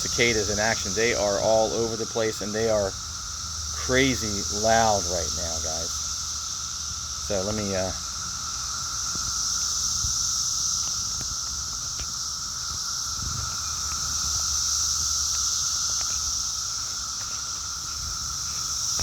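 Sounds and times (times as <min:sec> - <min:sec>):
cicadas buzzing chorus: 0:00.0 - 0:19.0.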